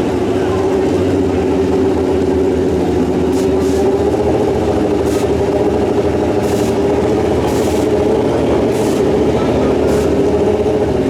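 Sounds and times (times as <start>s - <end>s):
motorcycle engine idling: 0.0s - 11.0s
short hissing bursts: 3.3s - 4.0s, 5.0s - 5.5s, 6.3s - 8.0s, 8.6s - 9.2s, 9.8s - 10.2s.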